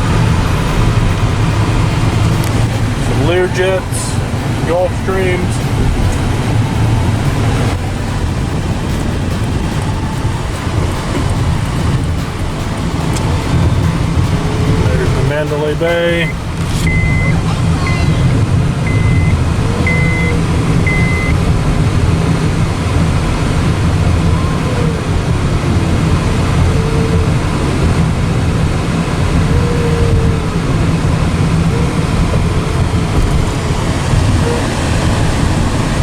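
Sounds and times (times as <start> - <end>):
car road and engine rumble: 0.0 - 36.0
short high electronic beeps: 16.2 - 18.3, 18.9 - 21.4.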